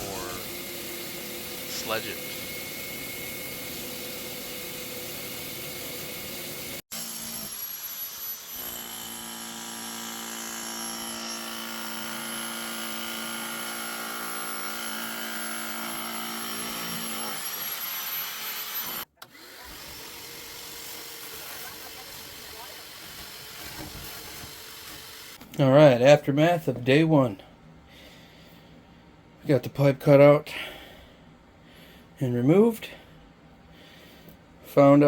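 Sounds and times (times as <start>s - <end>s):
power tool motor running: 0.0s - 25.4s.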